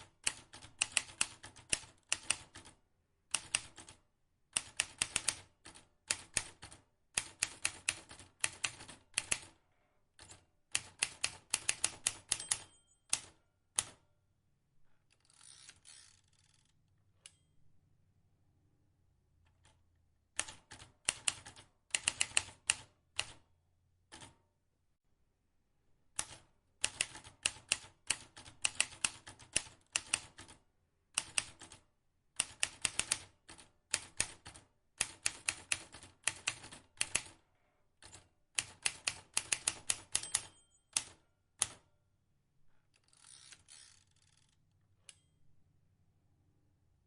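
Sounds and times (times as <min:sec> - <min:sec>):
typewriter key strikes: 0:11.5 - 0:13.4, 0:38.9 - 0:41.8.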